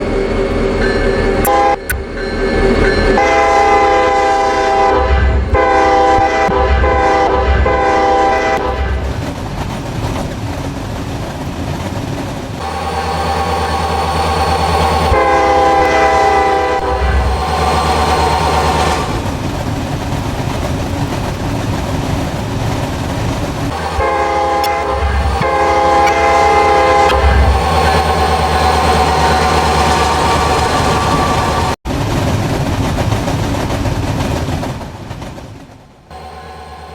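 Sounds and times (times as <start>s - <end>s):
locomotive engine rumble: 0.0s - 36.9s
rolling train cars: 0.0s - 36.9s
train air horn blasts: 1.4s - 2.0s, 3.1s - 9.1s, 12.6s - 19.2s, 23.7s - 31.8s.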